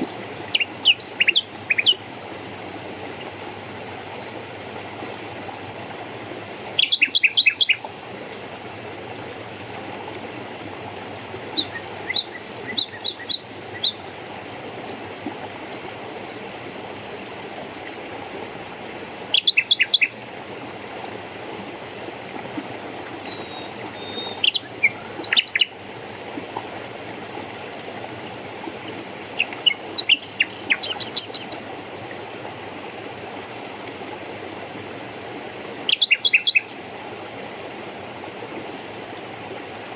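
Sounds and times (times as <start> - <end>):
flowing water: 0.0 - 39.9
songbird whistling song: 0.6 - 2.0, 5.0 - 7.8, 18.3 - 20.1, 23.3 - 25.7, 35.4 - 36.7.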